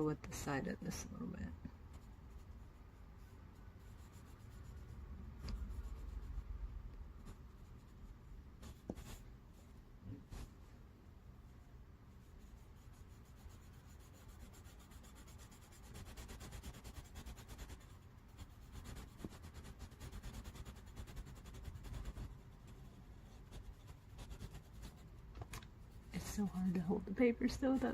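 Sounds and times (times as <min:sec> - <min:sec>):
drawing tool rubbing on paper: 0:01.9 - 0:06.6, 0:07.2 - 0:09.3, 0:12.1 - 0:25.2, 0:25.9 - 0:27.9.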